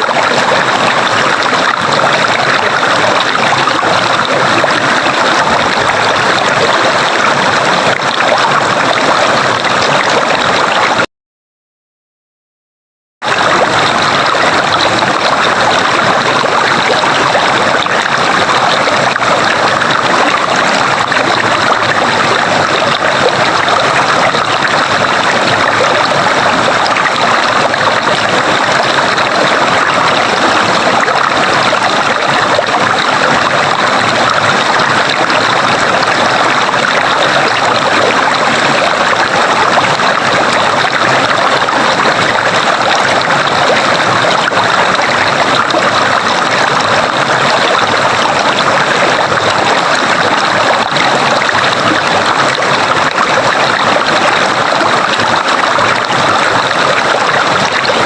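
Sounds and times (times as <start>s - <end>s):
stream water rushing and trickling: 0.0s - 11.1s, 13.2s - 58.0s.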